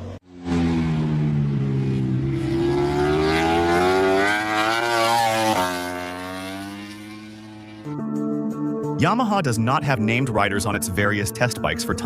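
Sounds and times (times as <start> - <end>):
motorcycle engine accelerating: 0.0 - 8.0.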